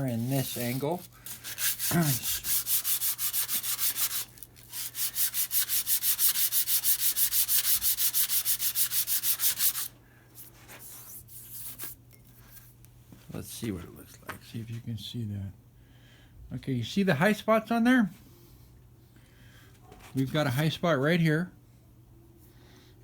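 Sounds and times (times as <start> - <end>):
sandpaper rubbing on metal: 0.0 - 11.9.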